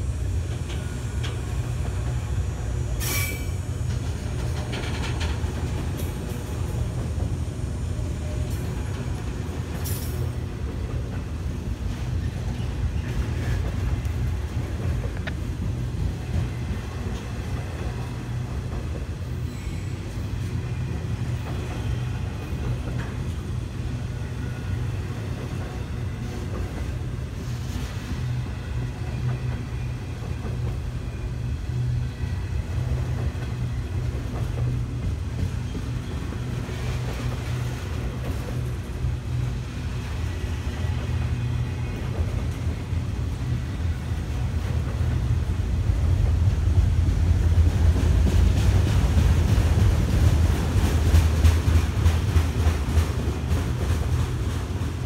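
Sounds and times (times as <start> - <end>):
rumble of wheels on rail: 0.0 - 55.0
faint wheel squeals: 19.4 - 20.3.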